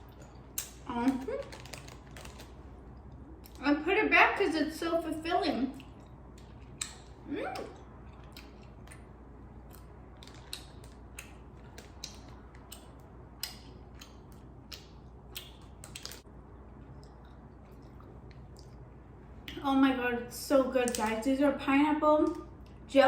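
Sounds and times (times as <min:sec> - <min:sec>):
chewing candy mouth sounds: 0:00.0 - 0:03.6, 0:05.7 - 0:19.6.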